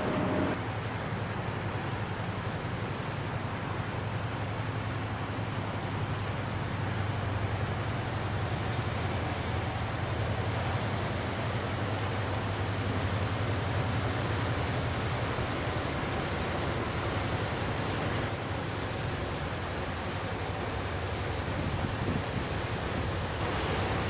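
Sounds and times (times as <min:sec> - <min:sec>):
ship diesel engine throbbing: 0:00.0 - 0:00.7
broad rushing noise: 0:00.0 - 0:01.2, 0:08.2 - 0:24.0.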